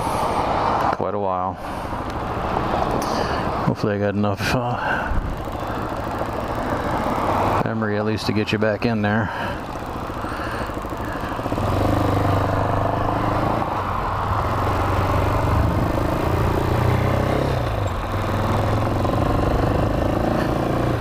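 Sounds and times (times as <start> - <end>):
dirt bike engine revving: 9.2 - 13.8, 14.4 - 21.0.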